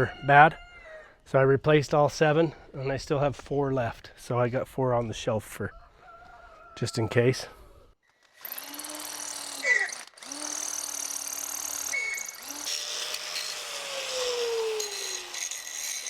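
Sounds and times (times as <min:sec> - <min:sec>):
power tool grinding metal: 0:08.3 - 0:16.0.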